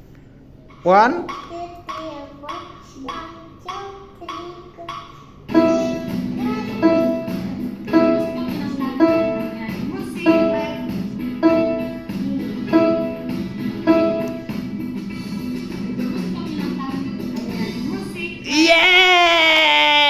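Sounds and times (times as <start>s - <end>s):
rhythmic backing accompaniment: 4.2s - 18.4s
keyboard piano melody: 5.5s - 17.2s.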